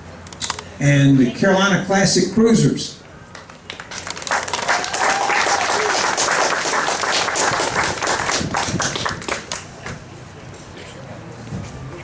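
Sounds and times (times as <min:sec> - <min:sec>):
crowd applauding: 0:03.3 - 0:10.0.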